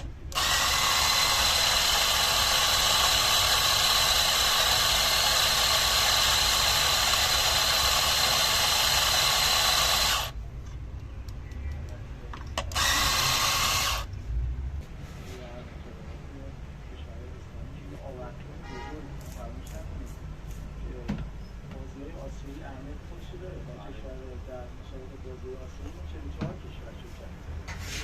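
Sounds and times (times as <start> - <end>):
electric coffee grinder whine: 0.0 - 10.4, 12.7 - 14.1.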